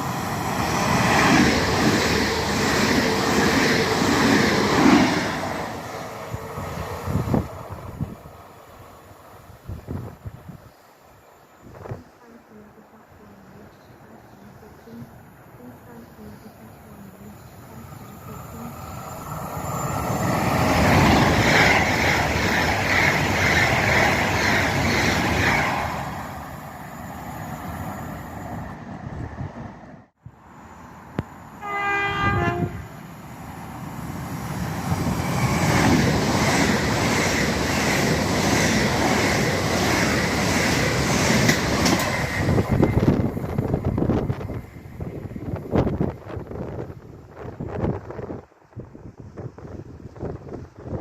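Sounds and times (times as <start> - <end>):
train wheels on rails: 0.0 - 8.6, 17.2 - 29.8, 33.4 - 48.2
train horn: 31.6 - 32.9.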